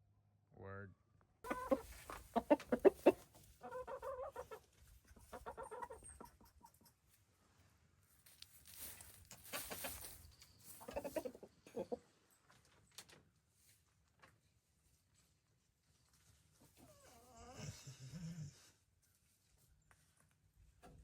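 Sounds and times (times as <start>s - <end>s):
chickens clucking: 1.4s - 7.1s, 9.3s - 12.7s
rustling noise: 8.1s - 11.0s.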